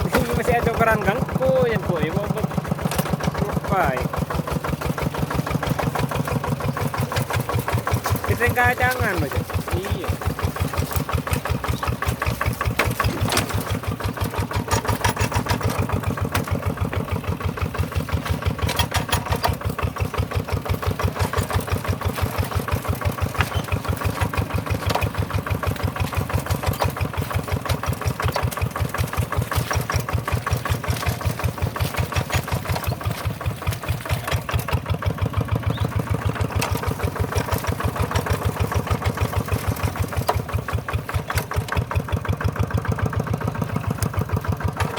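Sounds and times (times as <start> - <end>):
tractor engine chugging: 0.0 - 44.9.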